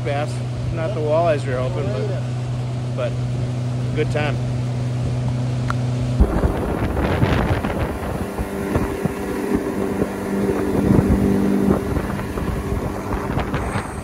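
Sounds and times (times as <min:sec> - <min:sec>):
engine running: 0:00.0 - 0:14.0
steady hum: 0:00.0 - 0:14.0
wind noise on microphone: 0:06.1 - 0:14.0.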